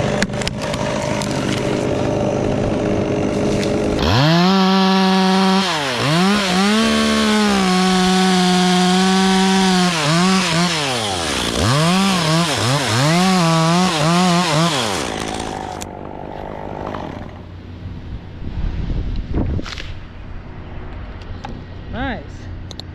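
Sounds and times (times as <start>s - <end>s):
chainsaw revving: 0.0s - 17.5s.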